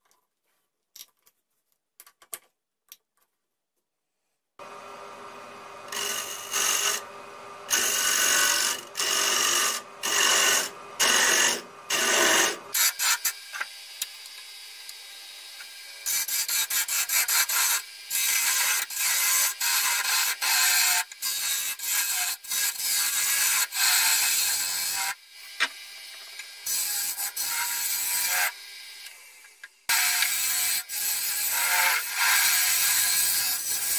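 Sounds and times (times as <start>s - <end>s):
lathe running hum: 4.6s - 12.7s
turning tool scraping wood: 5.8s - 7.1s, 7.7s - 13.4s.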